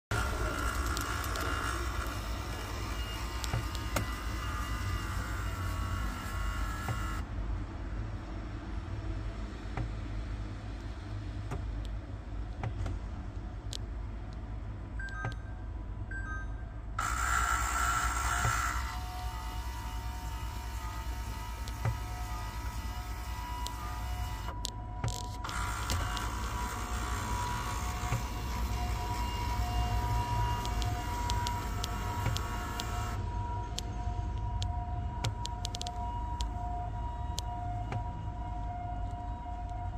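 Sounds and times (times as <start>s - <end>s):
low motor hum: 0.0s - 7.3s, 17.0s - 39.9s
short electronic beeps: 15.0s - 16.8s
sharp clicks: 30.5s - 33.2s.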